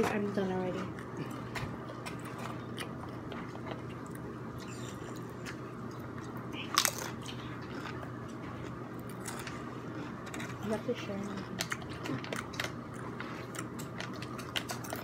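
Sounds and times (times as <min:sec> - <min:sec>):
faint low hum: 0:00.0 - 0:15.0
person chewing with crunching: 0:00.7 - 0:15.0.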